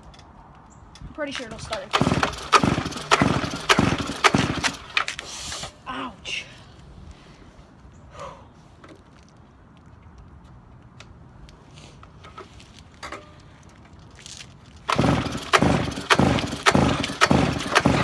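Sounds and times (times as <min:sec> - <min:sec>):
small engine cranking: 0:01.6 - 0:05.3, 0:14.8 - 0:18.0.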